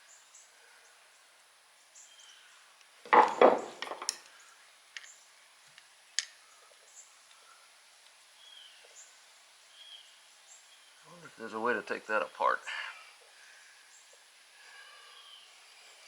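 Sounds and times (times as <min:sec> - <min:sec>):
metallic knocks and clanks: 0:03.1 - 0:04.2.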